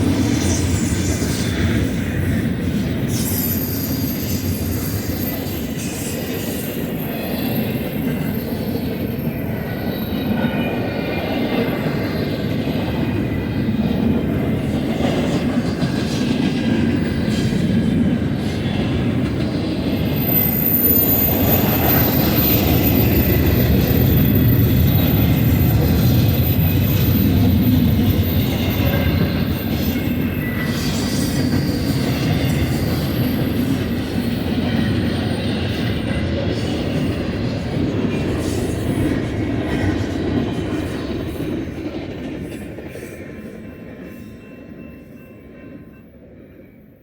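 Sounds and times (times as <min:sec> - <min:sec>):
train wheels rumbling on rail: 0:00.0 - 0:46.5
faint wheel squeal: 0:03.0 - 0:07.8, 0:20.0 - 0:33.7.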